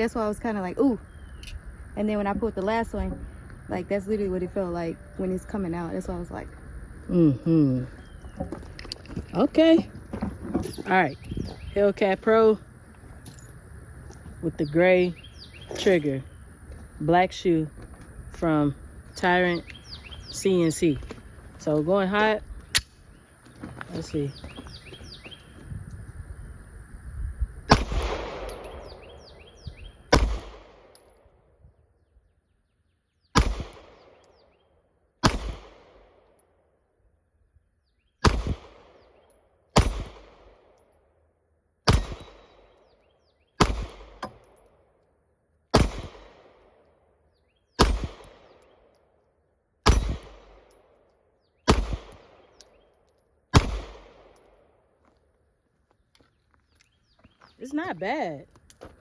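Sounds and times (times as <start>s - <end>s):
pistol shots echoing: 27.7s - 29.3s, 30.1s - 31.0s, 33.4s - 34.2s, 35.2s - 36.2s, 38.2s - 39.1s, 41.9s - 42.7s, 43.6s - 44.4s, 45.7s - 46.8s, 47.8s - 48.7s, 49.8s - 50.7s, 51.7s - 52.6s, 53.5s - 54.4s.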